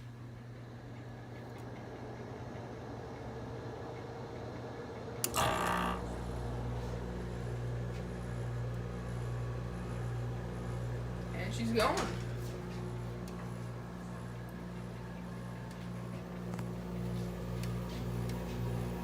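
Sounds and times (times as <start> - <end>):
air conditioner humming: 0.0 - 19.0
compressor click: 5.2 - 6.2.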